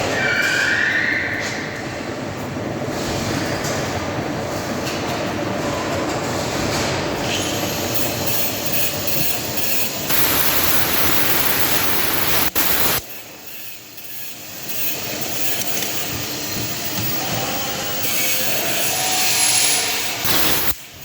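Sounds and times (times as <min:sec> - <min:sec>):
metal lathe grinding: 0:07.6 - 0:20.8.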